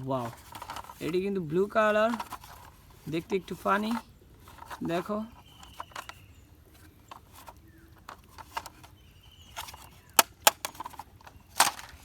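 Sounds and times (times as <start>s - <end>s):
plastic toy taps and clicks: 9.5s - 12.0s.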